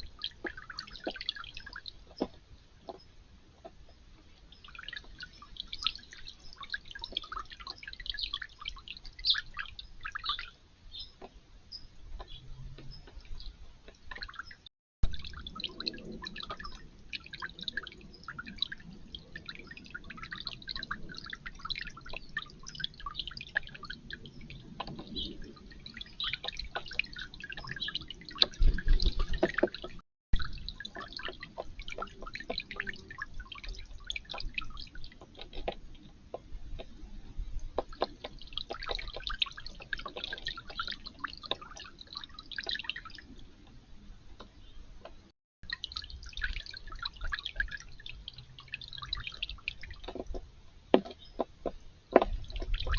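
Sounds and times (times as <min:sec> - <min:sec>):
water dripping and trickling: 0:00.0 - 0:52.9.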